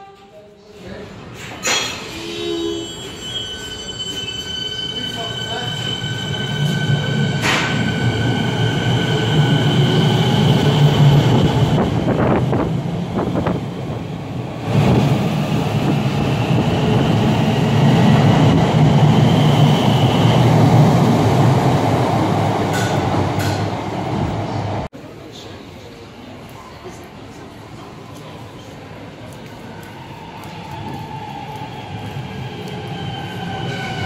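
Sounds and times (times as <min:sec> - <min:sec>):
train rumbling past: 0:02.0 - 0:24.9.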